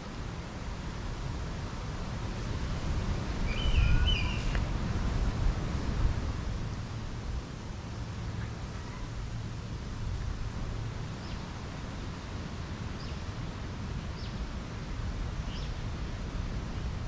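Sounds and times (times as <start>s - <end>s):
outdoor rumble and hiss: 0.0s - 17.0s
small bird chirping: 3.5s - 4.6s.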